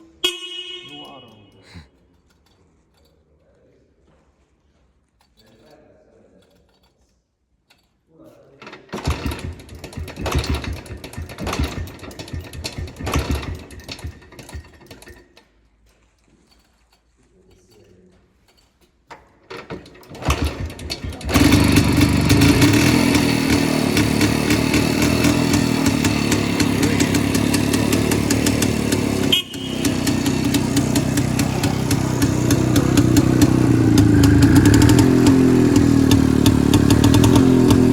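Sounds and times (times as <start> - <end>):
motorcycle kickstart: 8.6 - 15.6, 18.6 - 37.9
two-stroke engine sputtering and running: 8.9 - 15.3, 19.6 - 37.9.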